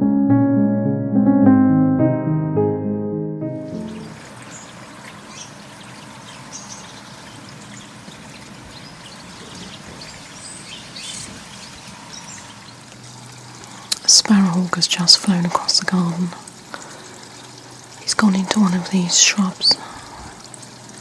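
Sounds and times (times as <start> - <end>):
small birds chirping: 3.7 - 14.6.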